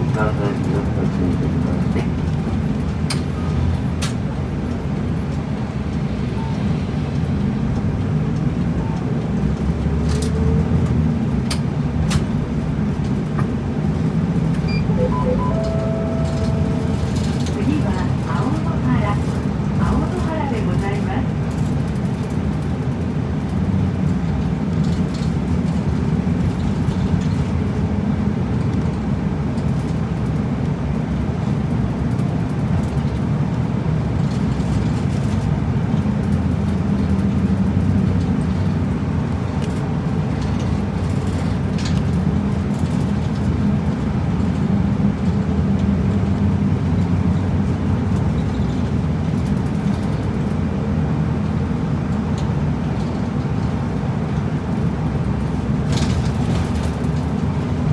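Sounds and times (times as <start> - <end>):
bus engine hum: 0.0 - 57.9
road noise: 0.0 - 57.9.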